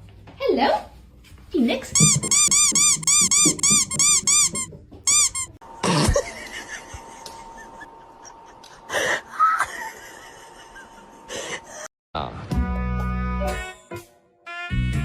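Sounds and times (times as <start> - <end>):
high-pitched squeaks: 1.9 - 5.6.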